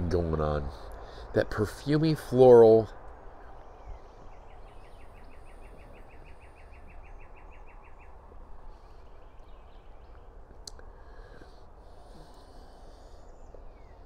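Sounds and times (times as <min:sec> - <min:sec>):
faint outdoor hum: 0:00.0 - 0:14.0
songbird trilling: 0:03.2 - 0:08.2.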